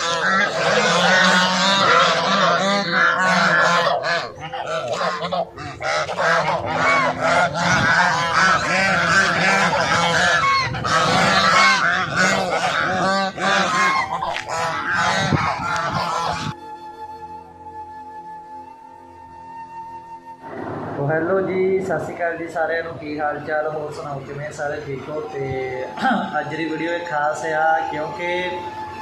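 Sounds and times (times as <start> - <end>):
flock of birds calling: 0.0 - 16.6.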